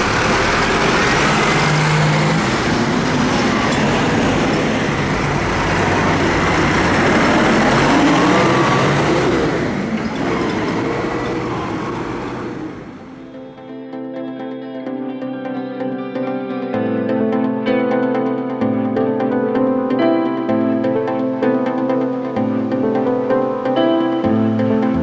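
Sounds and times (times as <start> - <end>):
tractor engine running: 0.0 - 13.4.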